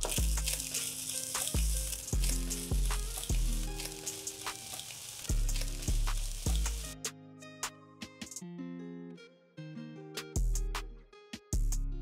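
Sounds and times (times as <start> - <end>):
music with deep bass beat: 0.0 - 0.8, 1.4 - 4.7, 5.3 - 7.1, 10.4 - 12.0
wooden spatula stirring: 0.0 - 6.8
rice sizzling in a hot pan: 0.0 - 7.0.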